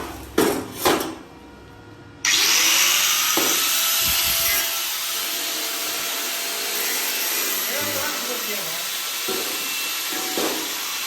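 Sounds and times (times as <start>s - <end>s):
angle grinder cutting metal pipe: 2.3s - 11.0s.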